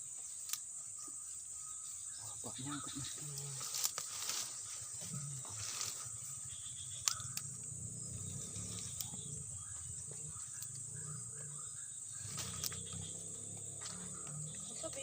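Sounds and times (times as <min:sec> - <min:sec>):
insects trilling: 0:00.0 - 0:15.0
sharp clicks: 0:06.9 - 0:07.8, 0:12.3 - 0:15.0.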